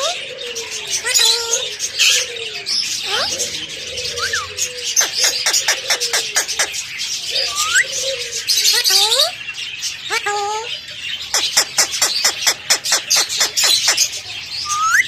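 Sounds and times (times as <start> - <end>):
parrot sharp chirps: 11.3 - 15.0.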